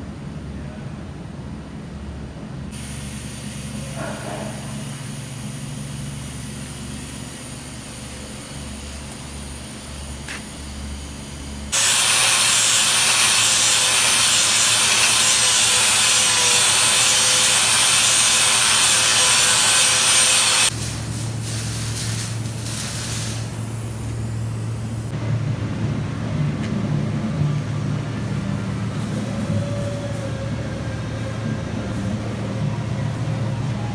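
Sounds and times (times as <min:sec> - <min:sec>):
welding arc crackling: 0:02.8 - 0:25.1.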